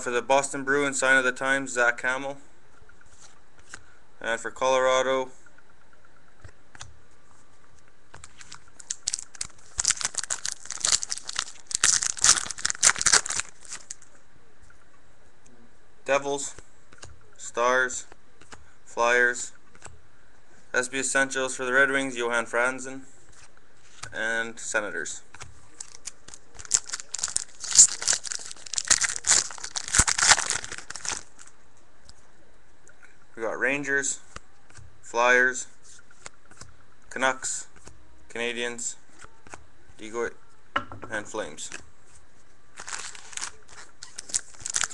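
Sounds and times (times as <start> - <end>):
plastic wrapper crinkling and tearing: 8.2 - 14.1, 25.7 - 31.6, 42.7 - 44.9.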